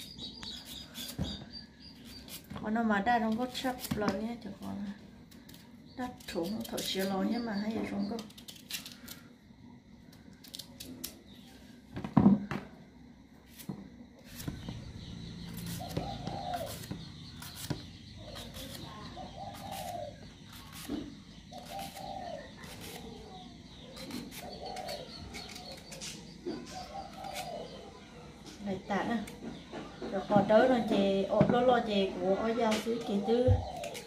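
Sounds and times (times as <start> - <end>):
bird cooing: 21.6 - 28.3.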